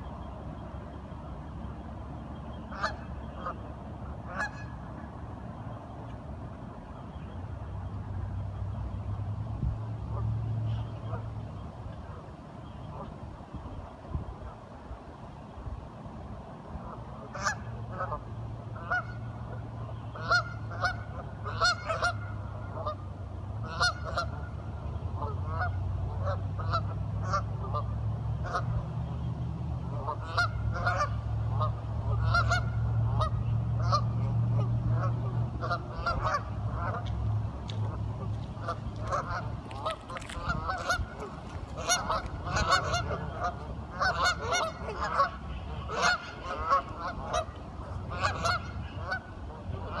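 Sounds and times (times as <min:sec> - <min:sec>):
waterfowl quacking: 0:02.7 - 0:03.6, 0:04.2 - 0:04.8, 0:17.3 - 0:18.2, 0:18.8 - 0:23.0, 0:23.6 - 0:24.5, 0:25.2 - 0:28.7, 0:29.9 - 0:50.0.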